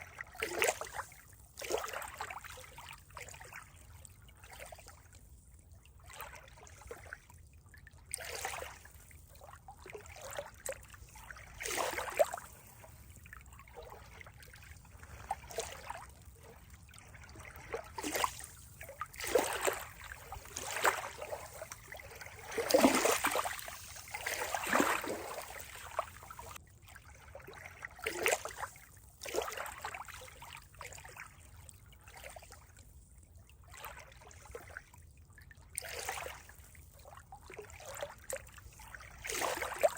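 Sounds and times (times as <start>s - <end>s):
water trickling and splashing: 0.0s - 39.9s
faint water rush: 8.0s - 32.8s.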